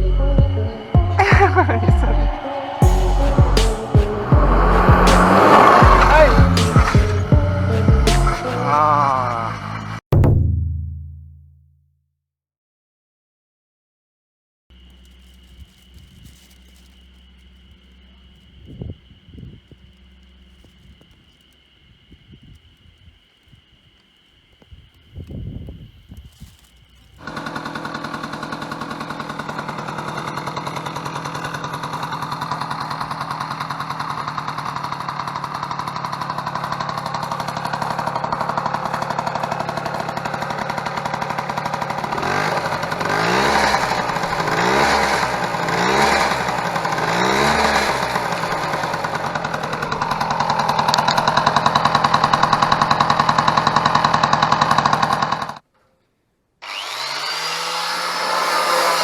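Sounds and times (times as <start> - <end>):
scooter engine idling and revving: 0.0 - 10.0, 27.2 - 55.6, 56.6 - 59.0.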